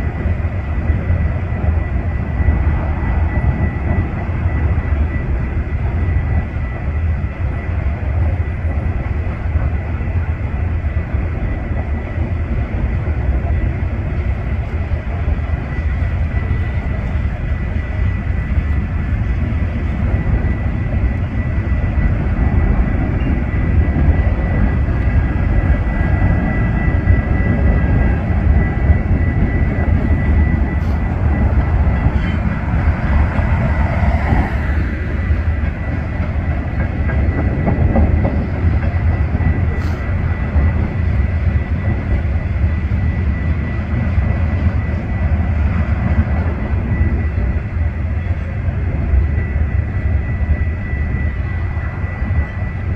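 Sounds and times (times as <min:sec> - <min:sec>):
train rumbling by: 0:00.0 - 0:52.9
high ringing tone: 0:15.7 - 0:34.2.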